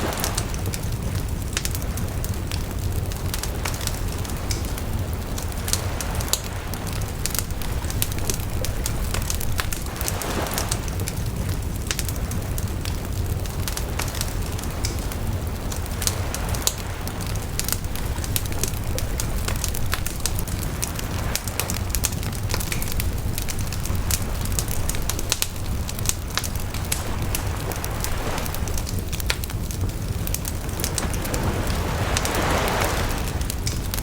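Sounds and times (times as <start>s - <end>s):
bonfire crackling and popping: 0.0s - 34.0s
low fire rumble: 0.0s - 34.0s.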